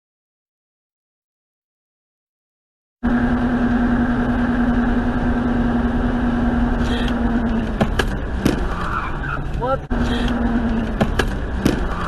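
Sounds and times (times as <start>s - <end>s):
car road noise from inside: 3.0s - 12.0s
constant low drone: 3.0s - 12.0s.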